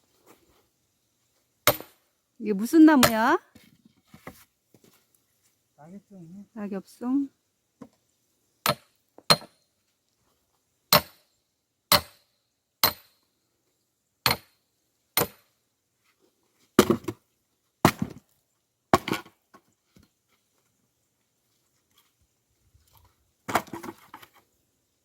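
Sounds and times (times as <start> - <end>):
axe chopping firewood: 1.6 - 2.0, 3.0 - 3.6, 8.6 - 9.6, 10.9 - 11.2, 11.9 - 12.2, 12.8 - 13.2, 14.2 - 14.5, 15.2 - 15.4, 16.8 - 17.2, 17.8 - 18.2, 18.9 - 19.3, 23.5 - 24.3.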